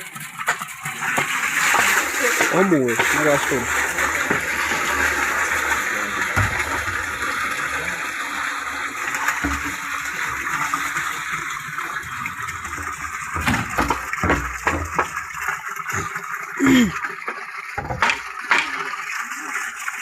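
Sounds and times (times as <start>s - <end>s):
running water rushing: 0.0s - 20.0s
dull thumps: 12.8s - 16.2s, 17.8s - 18.7s.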